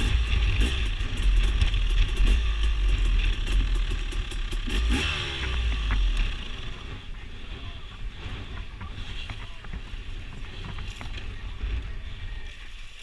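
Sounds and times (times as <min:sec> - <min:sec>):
wind rumbling on microphone: 0:05.2 - 0:13.0
small clicks and ticks: 0:08.5 - 0:11.9.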